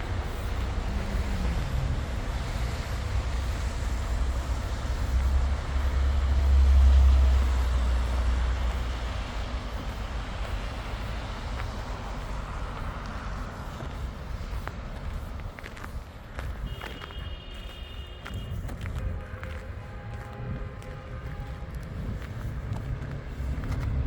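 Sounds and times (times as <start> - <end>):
vehicle passing by: 0.0 - 15.4, 21.7 - 24.0
city street traffic: 0.0 - 24.0.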